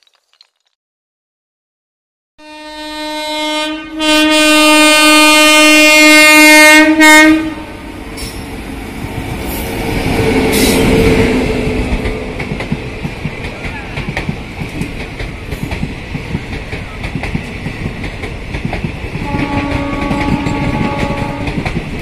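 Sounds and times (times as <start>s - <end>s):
locomotive air horn blast: 2.4s - 8.4s, 19.2s - 21.6s
passing train rumble and clatter: 4.8s - 22.0s.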